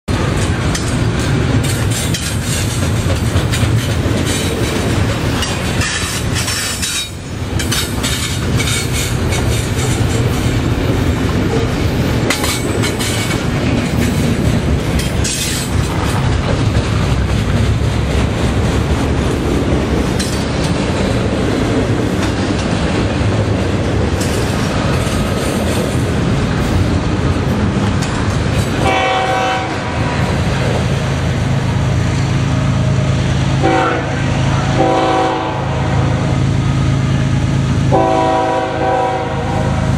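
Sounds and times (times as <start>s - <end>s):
wheels clacking over rail joints: 0.1s - 33.9s
freight train rolling past: 0.1s - 39.9s
train horn: 28.8s - 30.1s, 33.6s - 36.2s, 37.9s - 39.9s.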